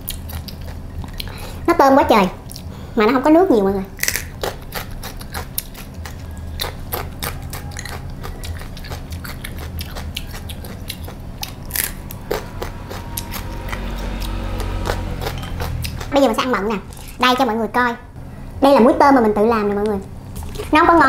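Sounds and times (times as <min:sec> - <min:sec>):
crunchy biting and chewing: 0:00.0 - 0:01.6, 0:04.0 - 0:17.2.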